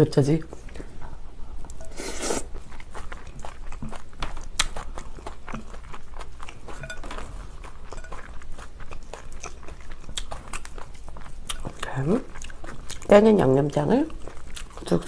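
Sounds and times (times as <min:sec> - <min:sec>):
wet crunchy chewing: 0:00.5 - 0:15.0
metal spoon against glass bowl: 0:06.7 - 0:07.2, 0:07.9 - 0:08.3.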